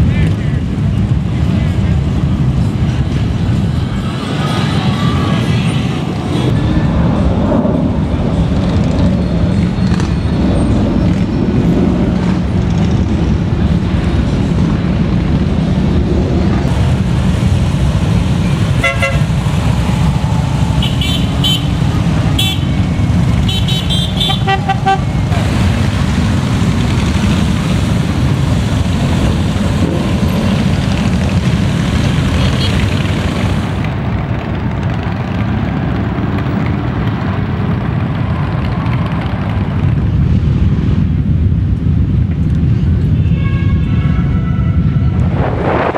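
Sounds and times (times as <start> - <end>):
motorcycle engines riding past: 0.0 - 43.2
motorcycle horn honks: 18.8 - 19.3, 20.8 - 21.7, 22.4 - 22.8, 23.5 - 25.1.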